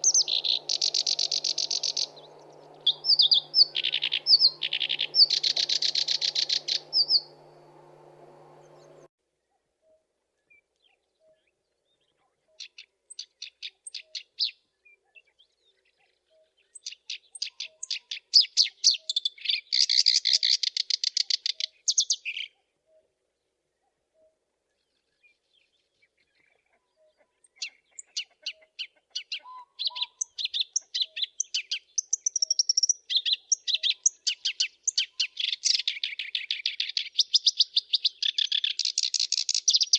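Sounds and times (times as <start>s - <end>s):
reed warbler singing: 0.0s - 9.1s, 27.6s - 39.9s.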